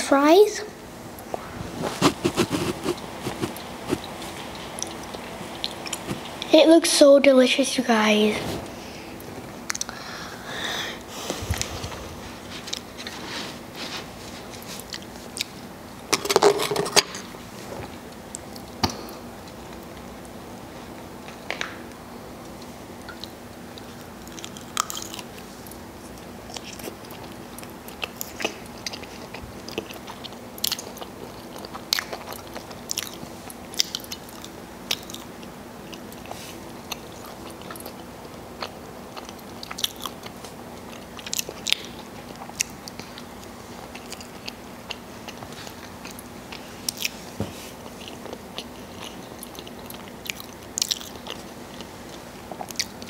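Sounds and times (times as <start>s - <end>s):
faint steady hum: 0.0s - 53.0s
chewing crunchy food: 14.4s - 15.6s, 22.5s - 53.0s.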